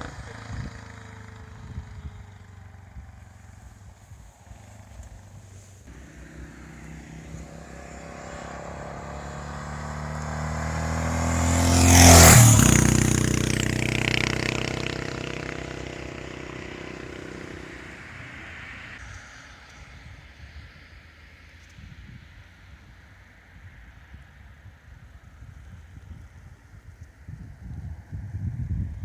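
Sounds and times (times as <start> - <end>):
motorcycle passing by: 0.0 - 20.0.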